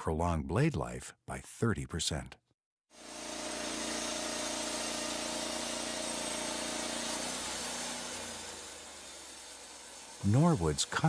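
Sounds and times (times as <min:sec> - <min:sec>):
band sawmill running: 0:02.9 - 0:11.0.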